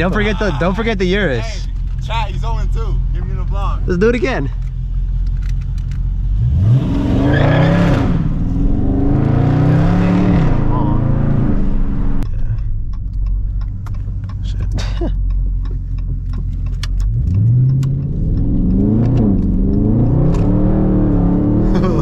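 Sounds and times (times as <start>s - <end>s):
loud car exhaust revving: 6.1s - 12.2s, 17.0s - 22.0s
sharp clicks: 12.2s - 20.6s.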